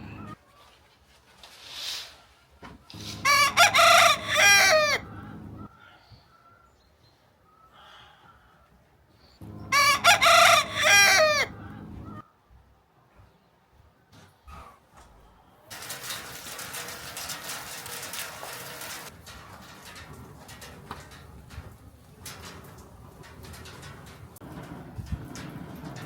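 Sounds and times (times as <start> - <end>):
rooster crowing: 3.1 - 5.7, 9.5 - 12.2.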